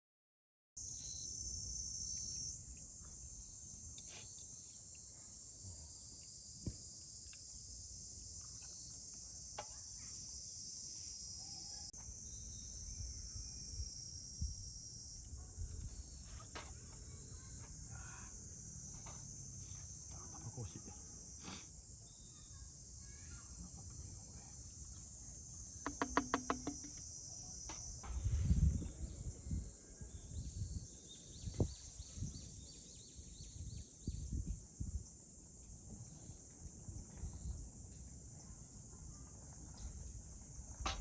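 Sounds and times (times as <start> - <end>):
insects trilling: 0.8 - 41.0
wind rumble on microphone: 12.8 - 16.2, 27.7 - 35.2, 35.8 - 38.0
faint knocks: 25.8 - 27.0.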